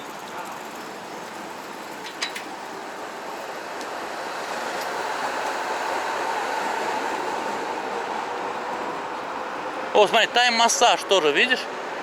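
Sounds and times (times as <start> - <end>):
city traffic passing: 0.0 - 12.0
vehicle passing: 3.1 - 12.0.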